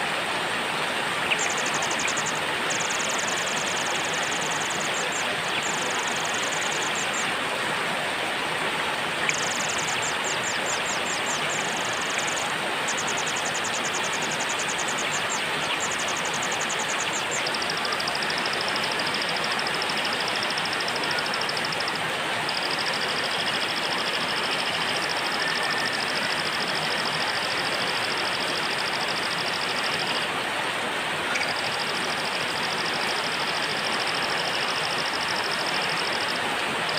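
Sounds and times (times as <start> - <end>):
heavy rain hiss: 0.0 - 36.9.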